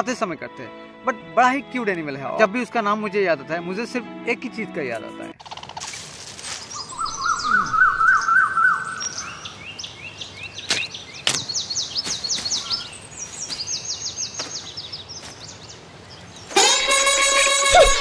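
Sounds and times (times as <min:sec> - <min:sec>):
birds chirping: 0:06.5 - 0:18.0.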